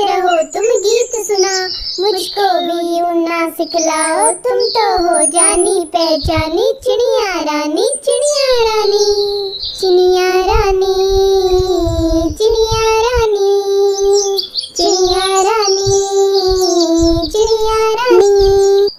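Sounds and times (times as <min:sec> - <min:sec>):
bird chirps: 0:00.0 - 0:06.7, 0:07.7 - 0:10.1, 0:13.8 - 0:18.9
child singing: 0:00.0 - 0:18.9
children's music with low beat: 0:14.8 - 0:18.7.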